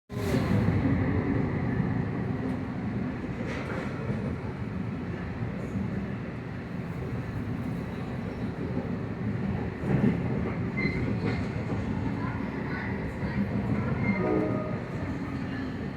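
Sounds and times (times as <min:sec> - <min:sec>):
train rumbling on tracks: 0:00.1 - 0:15.9.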